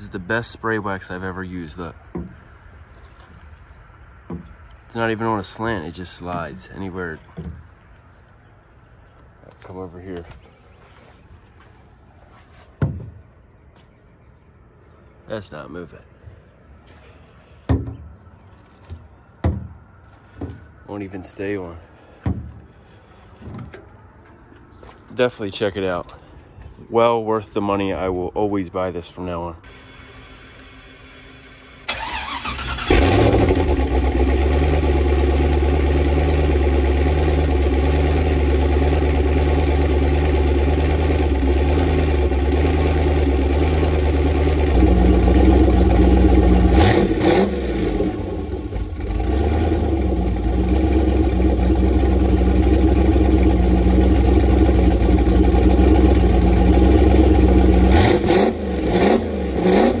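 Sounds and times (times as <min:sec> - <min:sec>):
car engine starting and idling: 0:29.6 - 1:00.0
engine revving: 0:31.9 - 1:00.0.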